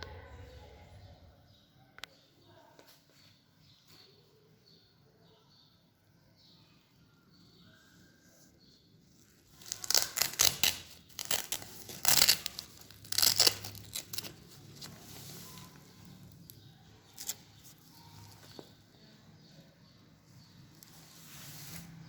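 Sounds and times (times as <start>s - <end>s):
stiff fabric rasping: 9.6s - 15.9s.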